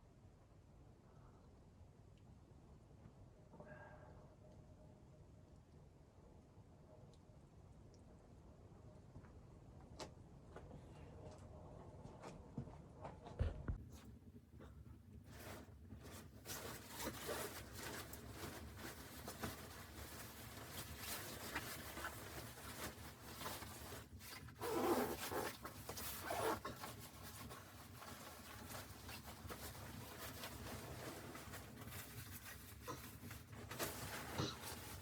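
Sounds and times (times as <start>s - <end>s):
rustling and scraping handling noises: 12.2s - 35.0s.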